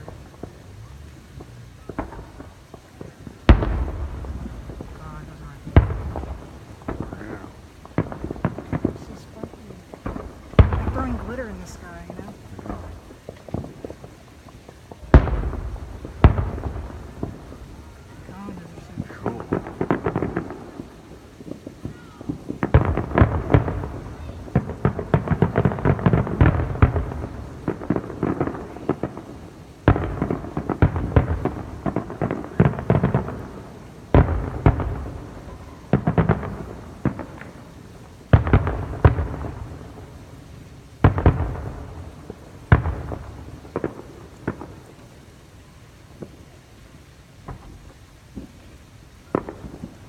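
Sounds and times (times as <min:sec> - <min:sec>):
rumbling echo: 0:00.0 - 0:14.1
firework bangs: 0:00.0 - 0:46.6, 0:47.4 - 0:50.0
firework crackling pops: 0:00.0 - 0:50.0.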